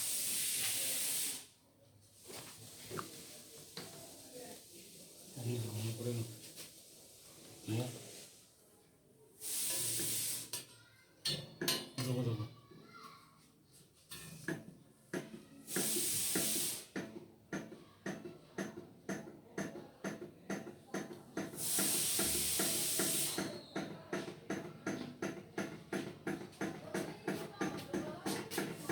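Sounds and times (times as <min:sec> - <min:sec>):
short bursts of hiss: 0:00.0 - 0:01.6, 0:09.4 - 0:10.7, 0:15.6 - 0:17.0, 0:21.4 - 0:23.6.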